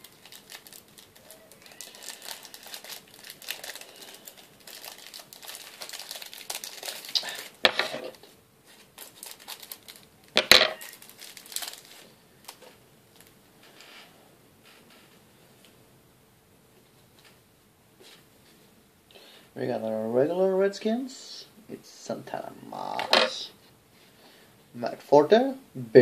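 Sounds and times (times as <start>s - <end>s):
plastic foil wrapper crinkling: 0.0s - 13.4s.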